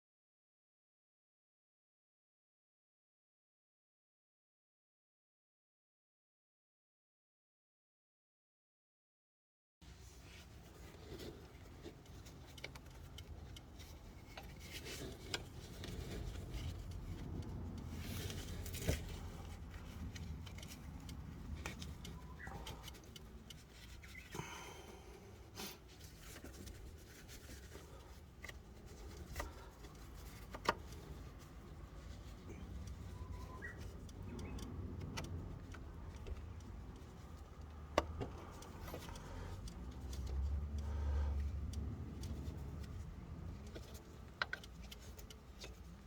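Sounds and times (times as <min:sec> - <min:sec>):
rubbing and scraping: 0:09.9 - 0:24.4, 0:25.3 - 0:34.4.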